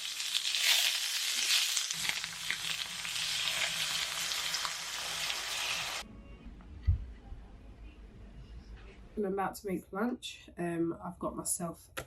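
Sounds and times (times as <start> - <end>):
food sizzling in a frying pan: 0.0 - 6.0.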